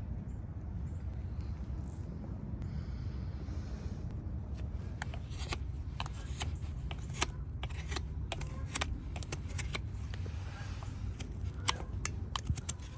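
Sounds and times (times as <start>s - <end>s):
steady low hum: 0.0s - 12.9s
hoof trimming tools clicking: 4.9s - 12.9s.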